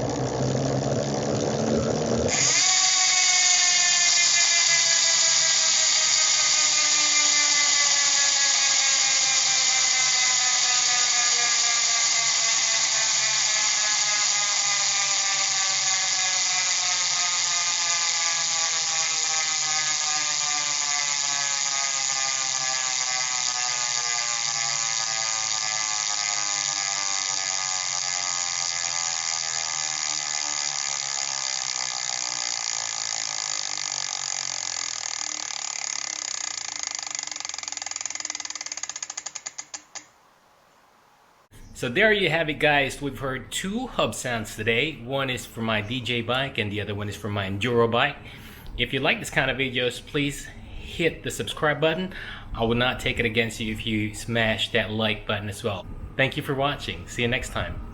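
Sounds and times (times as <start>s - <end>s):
bike freewheel buzzing: 0.0s - 40.2s.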